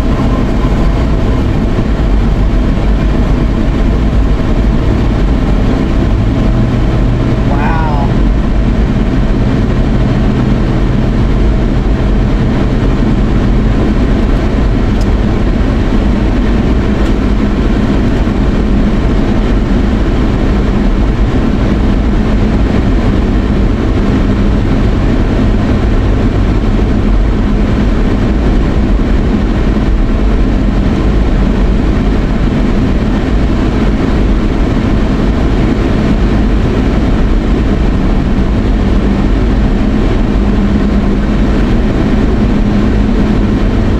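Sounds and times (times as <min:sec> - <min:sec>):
rushing noise: 0:00.0 - 0:21.9
low engine hum: 0:00.0 - 0:43.9.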